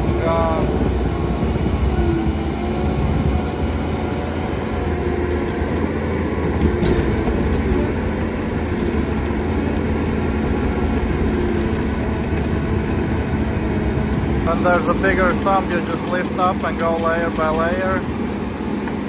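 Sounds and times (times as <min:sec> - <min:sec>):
skid steer engine under load: 0:00.0 - 0:19.0
rotor head grinding stumps: 0:04.4 - 0:15.9.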